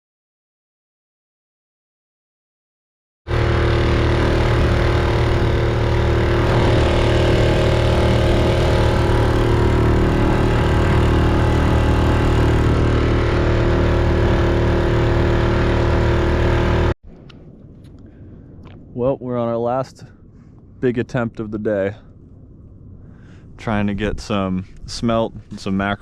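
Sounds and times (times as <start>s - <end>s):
outboard motor running: 3.3s - 17.0s.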